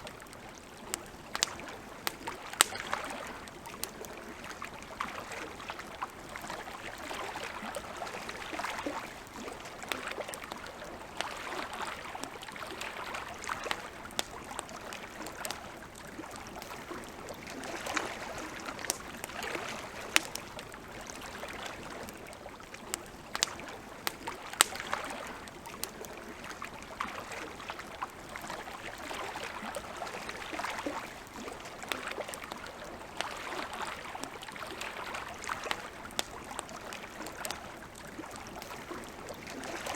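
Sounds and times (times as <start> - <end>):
campfire crackling: 0.0 - 39.9
lake water lapping: 0.0 - 39.9
fire popping: 0.8 - 4.4, 13.6 - 26.4.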